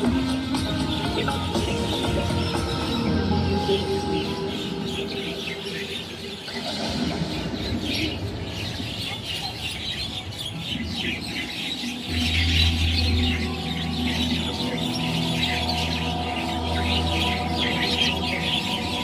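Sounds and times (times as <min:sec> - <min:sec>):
flock of birds chirping: 0:00.0 - 0:19.0.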